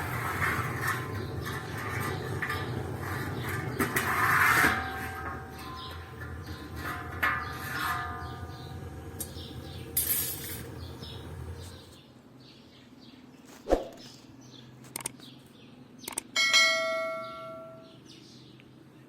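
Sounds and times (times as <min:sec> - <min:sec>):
low hum: 0:04.8 - 0:12.0
clicks: 0:14.9 - 0:15.3, 0:16.0 - 0:16.3.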